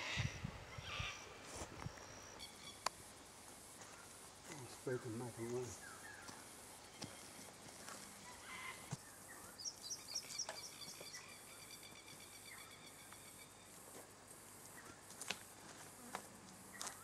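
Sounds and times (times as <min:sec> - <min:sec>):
bird chirping: 0:00.0 - 0:02.9, 0:04.9 - 0:13.8
faint bush ambience: 0:00.0 - 0:17.0.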